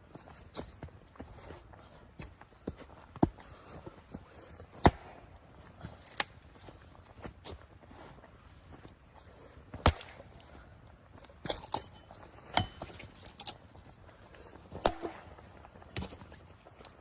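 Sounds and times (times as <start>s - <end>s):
sharp knocks and clinks: 11.5s - 13.5s.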